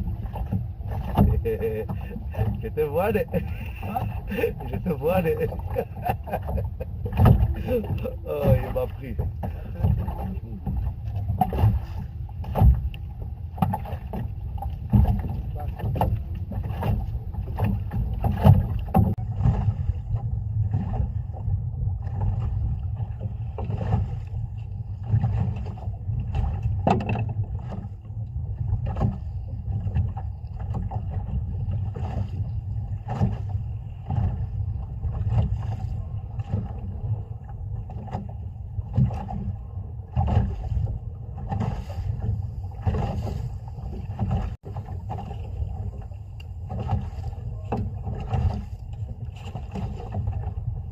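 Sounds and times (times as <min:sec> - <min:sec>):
low rumble of wind and sea: 0:00.0 - 0:50.9
water lapping against hull: 0:00.0 - 0:50.9
irregular knocks and clicks: 0:09.2 - 0:19.7, 0:26.3 - 0:27.9.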